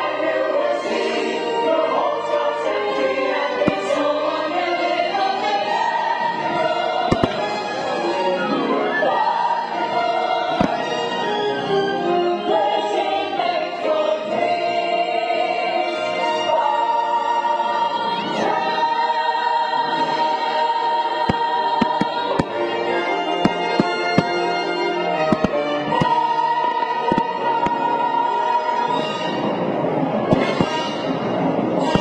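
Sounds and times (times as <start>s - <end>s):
choir singing: 0.0s - 32.0s
orchestral music: 0.0s - 32.0s
firework bangs: 3.7s - 4.1s, 7.1s - 7.7s, 10.6s - 11.1s, 23.5s - 24.5s, 30.3s - 31.2s.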